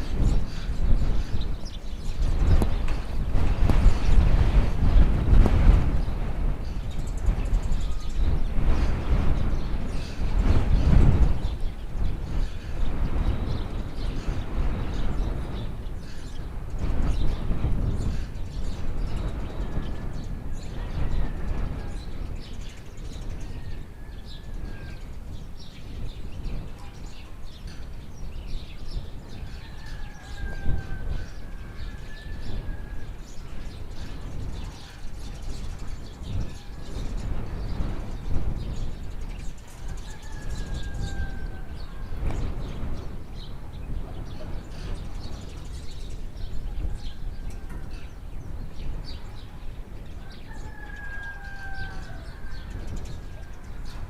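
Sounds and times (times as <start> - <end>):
small birds chirping: 0.0 - 54.0
rooster crowing: 29.4 - 33.2, 39.8 - 42.3, 50.2 - 54.0.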